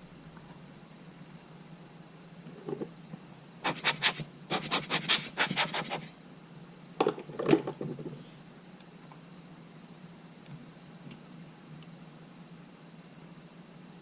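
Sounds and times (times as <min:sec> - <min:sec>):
rubbing scraping strokes: 0:03.6 - 0:06.1.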